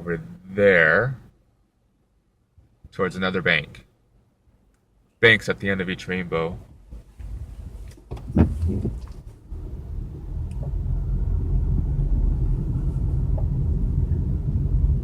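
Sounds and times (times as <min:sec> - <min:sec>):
engine and tyre rumble: 0:06.8 - 0:15.0.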